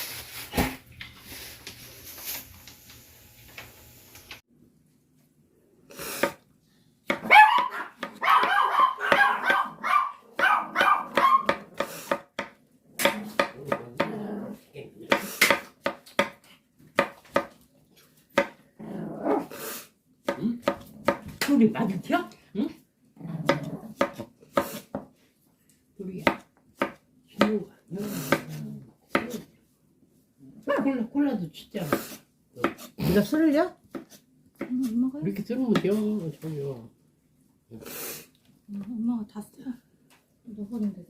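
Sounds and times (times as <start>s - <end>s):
dog barking: 7.2s - 11.7s, 30.6s - 31.0s.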